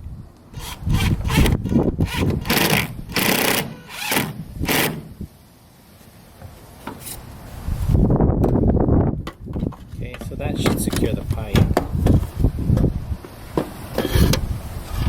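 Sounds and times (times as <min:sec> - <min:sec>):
cordless drill driving a screw: 0:00.6 - 0:05.1.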